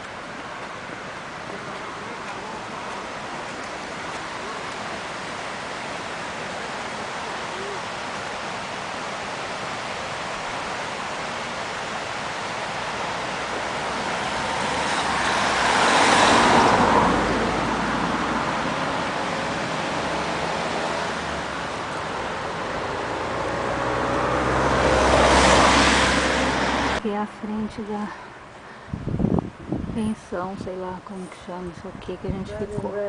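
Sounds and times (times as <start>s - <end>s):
car passing on road: 0.0s - 27.0s
vehicle approaching: 10.9s - 27.1s.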